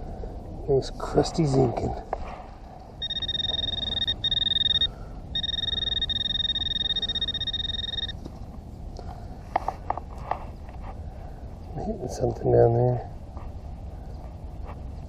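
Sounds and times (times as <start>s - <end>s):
high pulsing alert tone: 3.0s - 8.2s.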